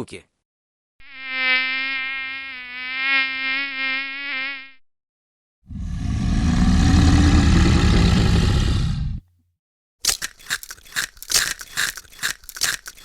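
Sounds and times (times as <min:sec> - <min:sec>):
flying insect buzzing: 0:01.0 - 0:04.8.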